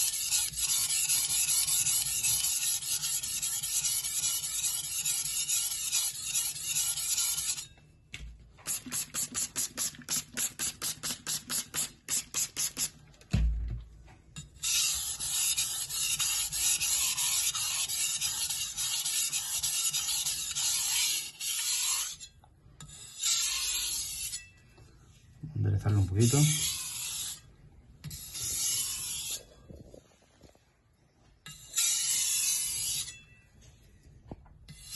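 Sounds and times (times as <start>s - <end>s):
knife grinding on whetstone: 0.0s - 7.8s, 14.4s - 24.6s, 25.9s - 29.6s, 31.4s - 33.4s.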